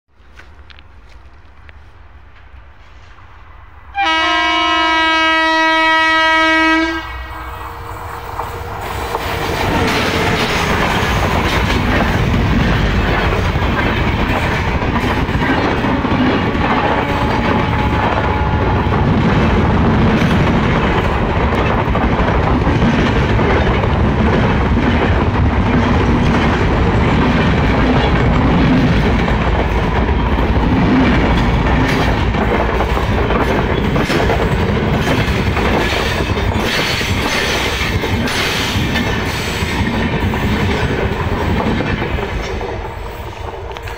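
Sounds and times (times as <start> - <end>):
rumble of train: 0.1 - 43.9
train horn blast: 3.9 - 10.5, 16.5 - 19.0
wheels clattering on rails: 8.0 - 43.9.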